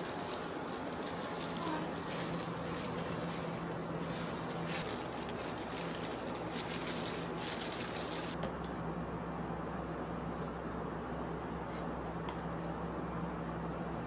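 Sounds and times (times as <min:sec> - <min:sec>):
light crackle: 0:00.0 - 0:08.4
low even hum: 0:00.0 - 0:14.0.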